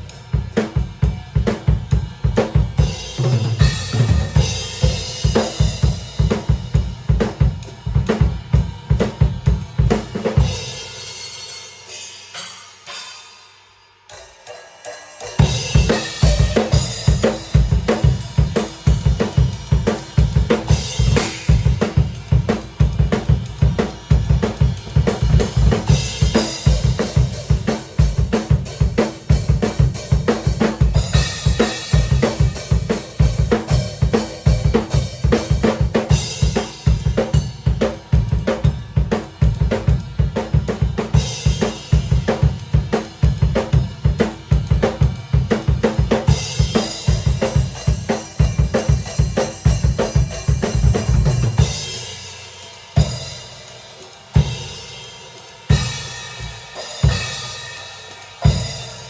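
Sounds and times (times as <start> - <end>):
bass drum and snare beat: 0.0 - 10.6, 15.4 - 55.0
cymbal crash: 10.4 - 20.1, 46.3 - 59.0
hi-hat: 46.2 - 59.0.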